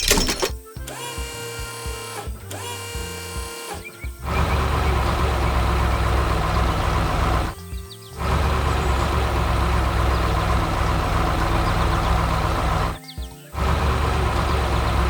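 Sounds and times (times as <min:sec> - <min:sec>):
background music with beat: 0:00.5 - 0:04.8, 0:07.5 - 0:08.2, 0:13.0 - 0:13.6
heavy engine running: 0:02.1 - 0:07.6, 0:08.2 - 0:13.0, 0:13.6 - 0:15.0.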